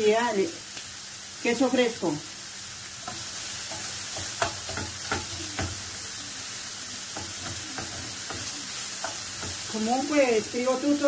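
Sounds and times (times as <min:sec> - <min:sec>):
food sizzling in a frying pan: 0:00.0 - 0:11.0
wooden spoon knocking on pan: 0:03.1 - 0:05.9, 0:07.2 - 0:09.8.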